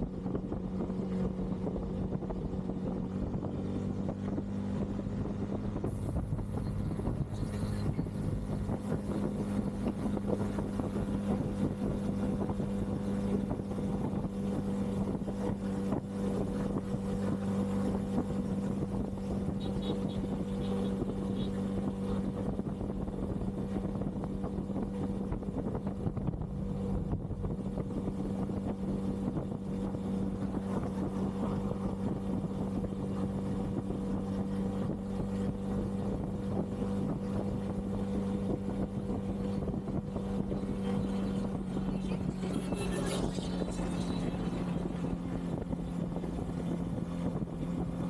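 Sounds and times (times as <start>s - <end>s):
motorcycle engine cruising: 0.0s - 48.0s
wind noise on microphone: 0.0s - 48.0s.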